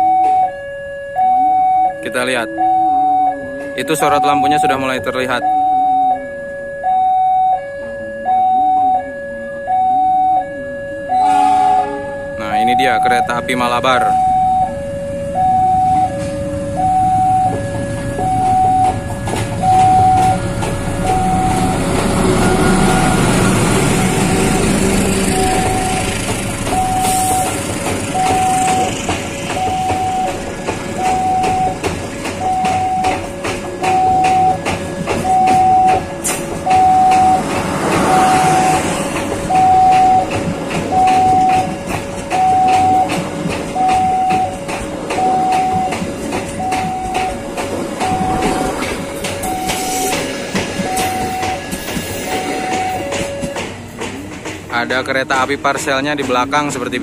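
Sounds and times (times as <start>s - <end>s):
level crossing alarm two-tone: 0.0s - 53.6s
passenger train running past: 0.0s - 57.0s
wheels clicking over rail joints: 16.0s - 57.0s.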